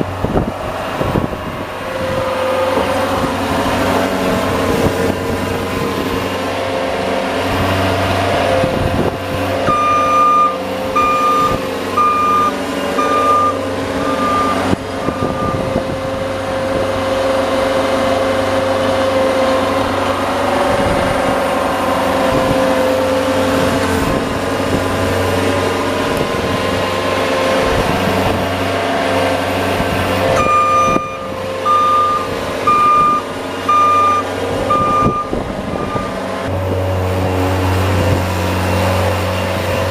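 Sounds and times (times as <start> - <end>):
vehicle engine running: 0.0 - 39.9
reversing beeper: 9.6 - 15.8, 30.3 - 36.2.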